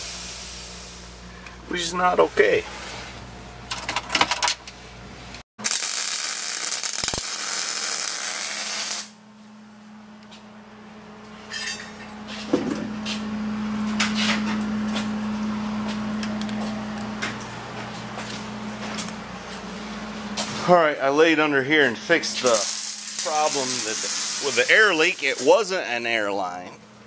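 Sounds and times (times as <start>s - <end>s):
air hissing from air suspension: 0.0s - 1.2s
steady low hum: 9.1s - 27.0s.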